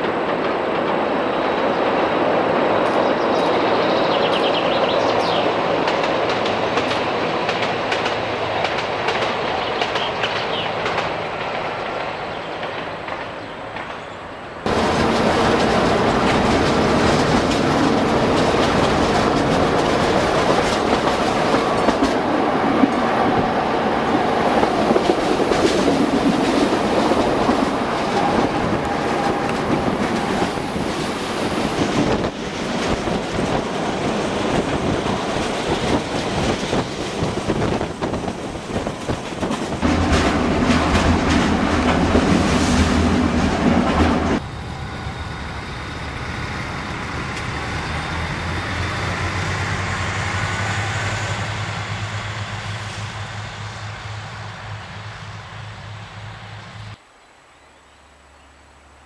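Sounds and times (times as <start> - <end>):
train running noise: 0.0 - 57.1
diesel locomotive drone: 0.0 - 59.0
wheels clacking over rail joints: 5.3 - 14.1, 14.7 - 44.4.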